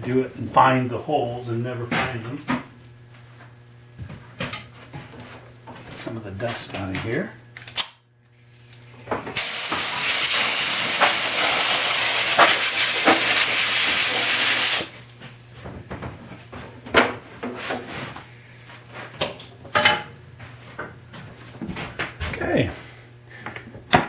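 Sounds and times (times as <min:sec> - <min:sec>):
compressed air hissing: 0:08.5 - 0:15.1.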